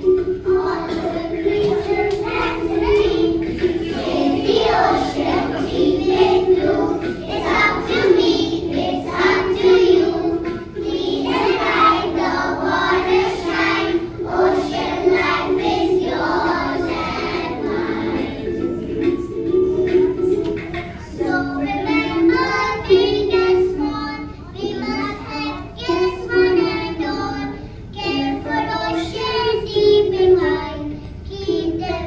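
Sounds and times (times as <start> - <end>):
backing track music: 0.0 - 25.2
children singing in unison: 0.0 - 32.0.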